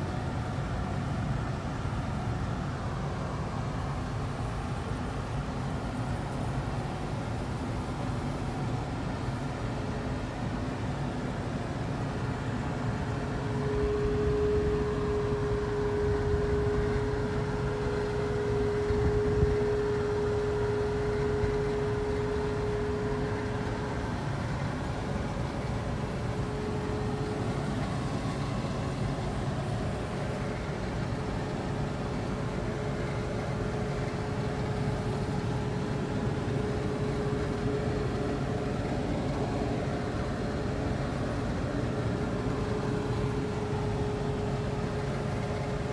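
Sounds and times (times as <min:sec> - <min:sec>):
steady whine: 0:00.0 - 0:45.9
combine harvester rumbling: 0:14.7 - 0:45.9.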